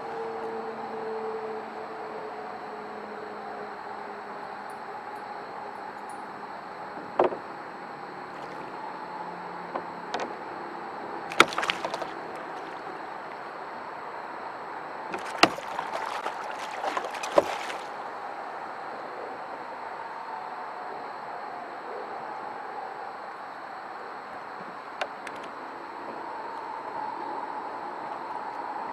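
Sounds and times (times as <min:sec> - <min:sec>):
knocks against boat: 0:07.0 - 0:07.5, 0:11.3 - 0:12.8, 0:15.1 - 0:17.9
fish thrashing and splashing: 0:08.3 - 0:08.7, 0:11.3 - 0:13.4, 0:15.1 - 0:18.1.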